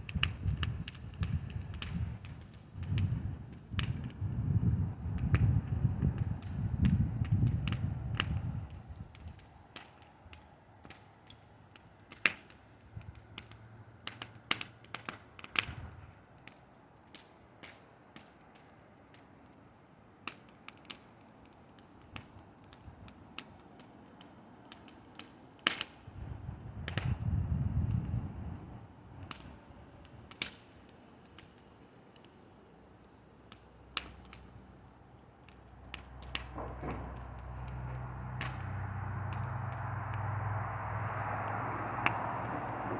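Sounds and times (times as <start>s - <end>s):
bonfire crackling and popping: 0.0s - 42.9s
low rumble: 34.4s - 42.9s.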